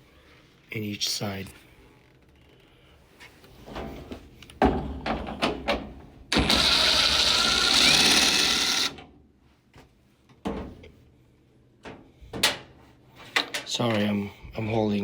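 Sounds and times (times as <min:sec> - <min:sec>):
power drill running: 0:06.3 - 0:09.0.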